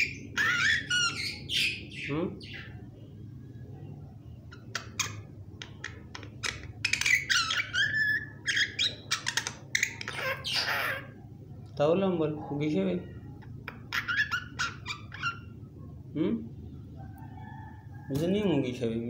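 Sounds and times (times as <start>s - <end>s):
myna chirps and clicks: 4.5s - 11.8s.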